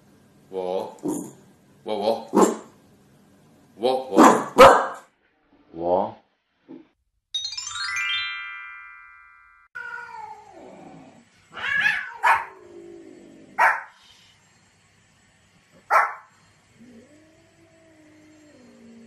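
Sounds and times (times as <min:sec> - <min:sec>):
dog barking sharply: 0:02.4 - 0:02.7, 0:04.2 - 0:05.1, 0:11.8 - 0:12.5, 0:13.6 - 0:13.9, 0:15.9 - 0:16.3
ringing chime: 0:07.4 - 0:09.8
cat meowing: 0:09.8 - 0:10.8, 0:11.5 - 0:12.7.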